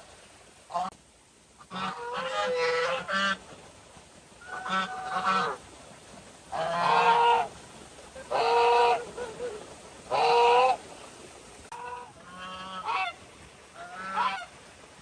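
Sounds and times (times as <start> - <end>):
geese honking: 1.6 - 3.4, 4.4 - 5.6, 6.5 - 7.5, 8.2 - 9.5, 10.1 - 10.8, 11.7 - 13.2, 13.8 - 14.5.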